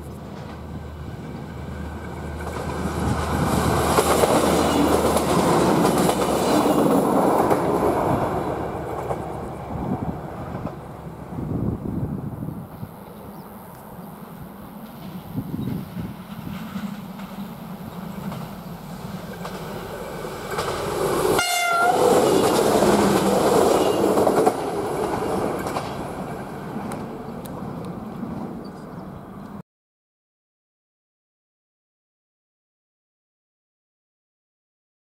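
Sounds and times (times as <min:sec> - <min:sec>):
diesel railcar passing: 0:00.0 - 0:29.6
train horn blast: 0:21.4 - 0:24.2.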